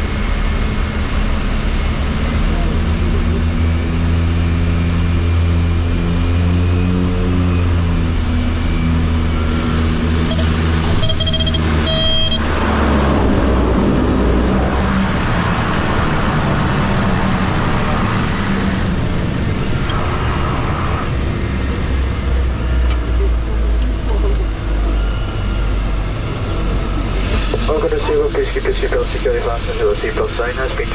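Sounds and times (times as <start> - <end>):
jet engines hum in cabin: 0.0 - 30.9
short tones: 9.4 - 12.6
loud rushing noise: 25.0 - 30.9.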